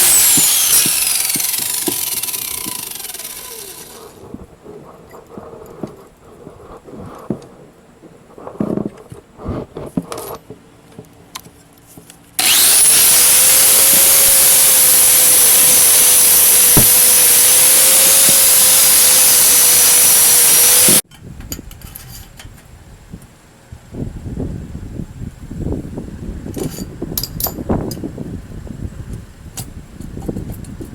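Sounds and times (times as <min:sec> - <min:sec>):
angle grinder grinding steel: 0:00.0 - 0:04.3, 0:12.4 - 0:21.0.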